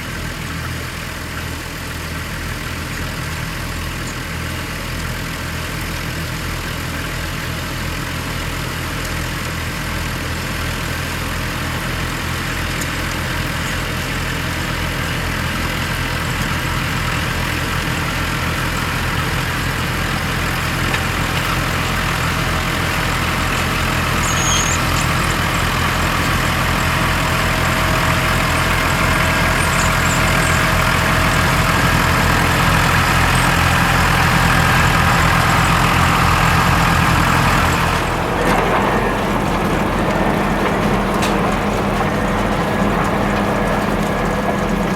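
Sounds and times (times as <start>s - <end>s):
diesel tractor engines running: 0.0s - 44.9s.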